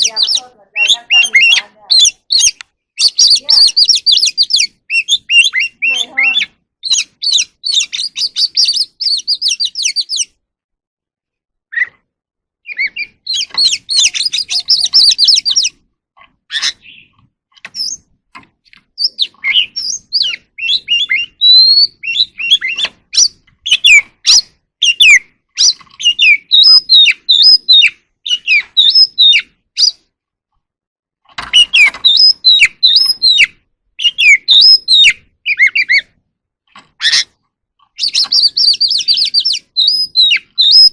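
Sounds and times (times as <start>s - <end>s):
bird chattering and whistling: 0.0s - 10.4s, 12.6s - 15.8s, 16.5s - 18.1s, 19.0s - 30.0s, 31.5s - 36.2s, 37.0s - 40.9s.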